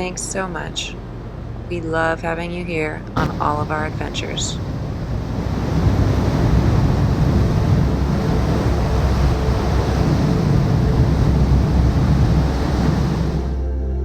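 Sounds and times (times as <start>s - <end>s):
waterfall rushing: 3.2s - 13.6s.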